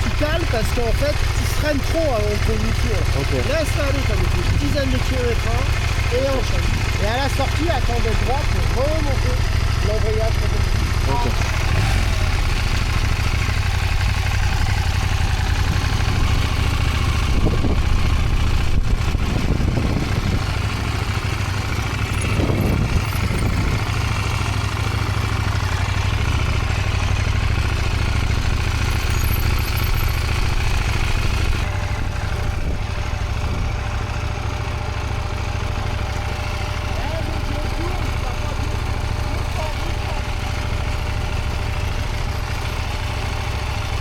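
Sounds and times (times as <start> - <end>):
motorcycle engine rumbling: 0.0 - 44.0.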